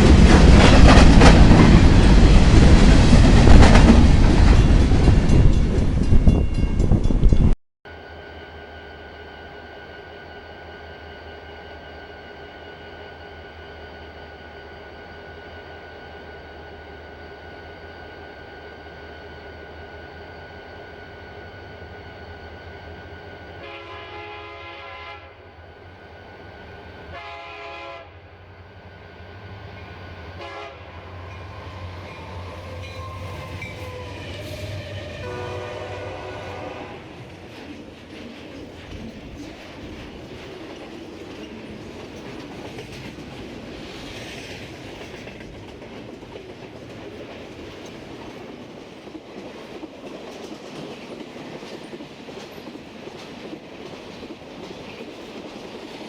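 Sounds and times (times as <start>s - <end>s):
locomotive horn blasts: 23.5s - 25.5s, 27.1s - 28.3s, 30.3s - 31.4s, 32.2s - 37.3s.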